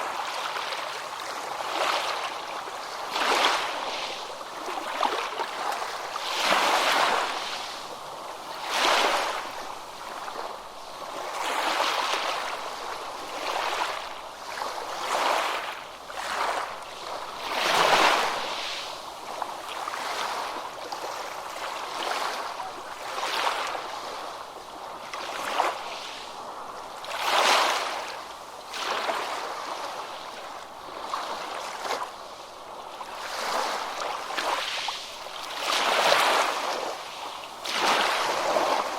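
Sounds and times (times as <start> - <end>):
small waves breaking on a beach: 0.0 - 38.9.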